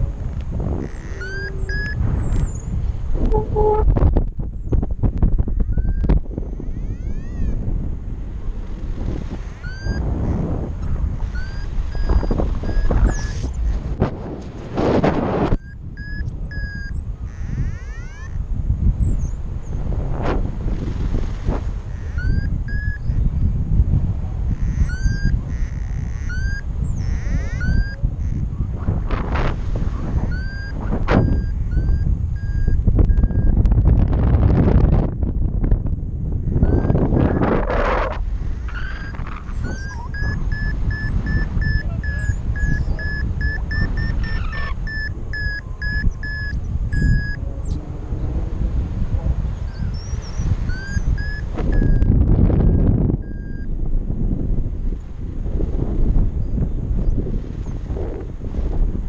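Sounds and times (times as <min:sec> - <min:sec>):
wind buffeting microphone: 0:00.0 - 0:59.0
short high beeps: 0:00.8 - 0:02.0, 0:05.7 - 0:06.1, 0:09.6 - 0:10.1, 0:11.2 - 0:13.6, 0:15.5 - 0:18.4, 0:22.0 - 0:23.2, 0:24.8 - 0:28.0, 0:30.2 - 0:33.6, 0:36.6 - 0:37.7, 0:38.9 - 0:47.4, 0:50.6 - 0:53.7.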